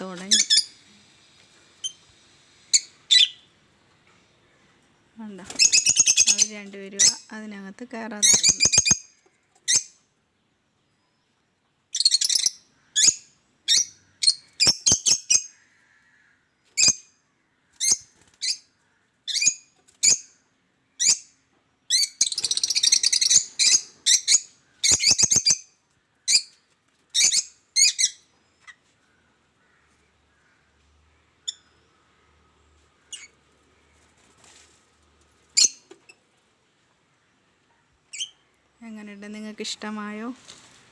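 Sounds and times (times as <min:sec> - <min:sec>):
pet birds chirping and squawking: 0:00.0 - 0:00.8, 0:02.7 - 0:10.0, 0:12.0 - 0:16.0, 0:16.7 - 0:17.1, 0:17.7 - 0:20.4, 0:21.0 - 0:30.6, 0:33.0 - 0:33.5, 0:35.4 - 0:36.2, 0:37.9 - 0:38.6.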